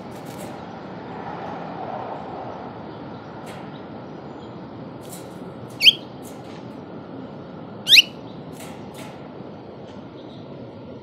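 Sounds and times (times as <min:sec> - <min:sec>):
songbird chirps: 0:05.8 - 0:06.1, 0:07.9 - 0:08.4.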